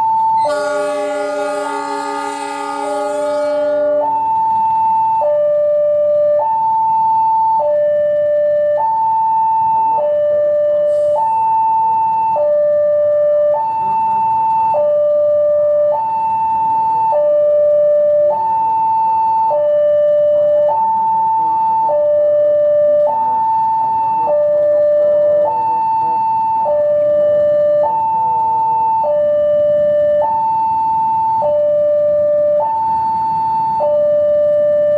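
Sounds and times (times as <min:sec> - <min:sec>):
level crossing two-tone alarm: 0:00.0 - 0:09.2, 0:10.0 - 0:34.9
brief hiss: 0:10.9 - 0:11.3.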